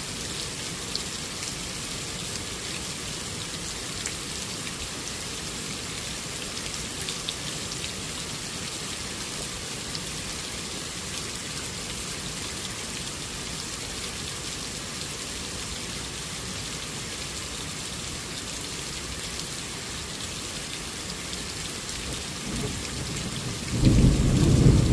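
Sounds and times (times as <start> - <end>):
steady rain falling: 0.0 - 24.9
low rumble of thunder: 22.4 - 24.9.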